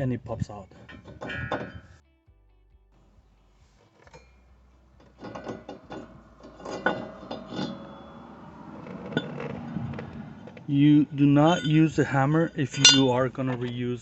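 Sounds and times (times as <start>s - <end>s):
metal brake parts clinking: 0.7s - 2.0s, 3.8s - 14.0s
faint low hum: 3.0s - 14.0s.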